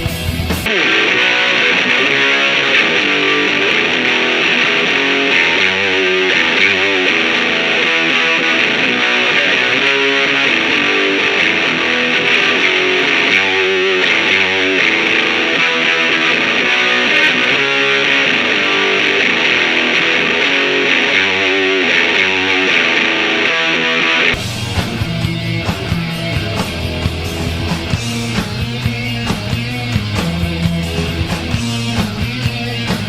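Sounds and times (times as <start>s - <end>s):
distorted electric guitar riff: 0.0s - 33.0s.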